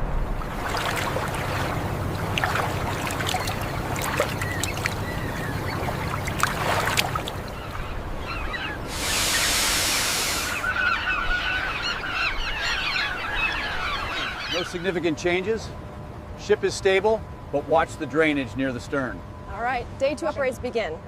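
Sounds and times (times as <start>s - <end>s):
steady low rumble: 0.0s - 10.6s
geese honking: 2.7s - 15.5s
hiss: 8.9s - 10.6s.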